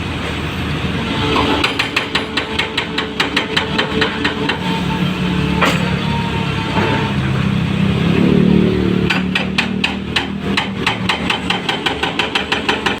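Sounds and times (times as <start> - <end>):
backhoe engine running: 1.3 - 13.0
rapid regular hammering: 1.5 - 4.8, 9.0 - 13.0.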